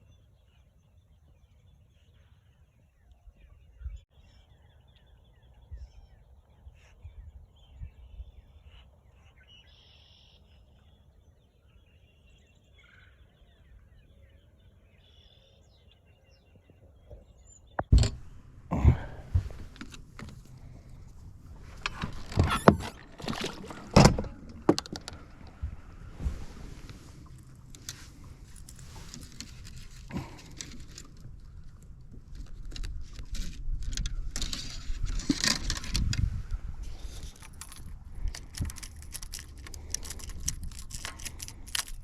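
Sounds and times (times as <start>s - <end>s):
faint bird chirps: 0.0s - 17.9s
knocks and bumps: 17.8s - 26.4s.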